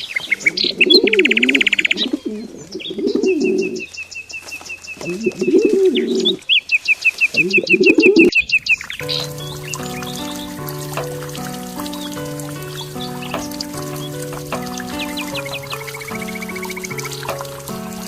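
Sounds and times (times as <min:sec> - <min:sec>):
bird cooing: 0:00.4 - 0:03.9, 0:05.0 - 0:06.4
small bird high chirps: 0:00.6 - 0:18.0
music: 0:09.0 - 0:18.0.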